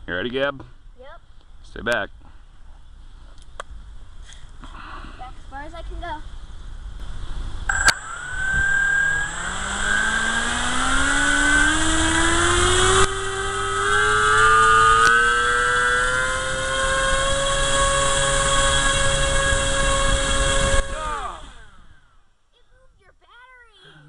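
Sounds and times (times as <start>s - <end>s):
sharp clicks: 7.7s - 8.7s
electric motor whine: 7.7s - 22.1s.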